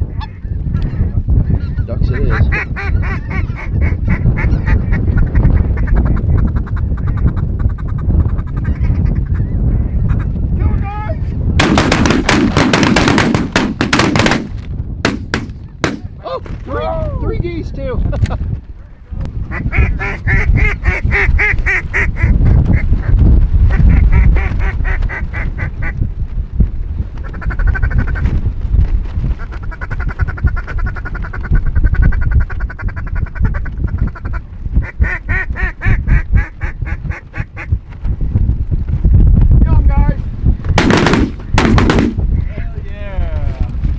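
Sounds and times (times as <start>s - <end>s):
duck quacking: 2.3s - 5.0s, 19.5s - 22.3s
shotgun blasts: 11.6s - 16.1s, 40.8s - 42.3s.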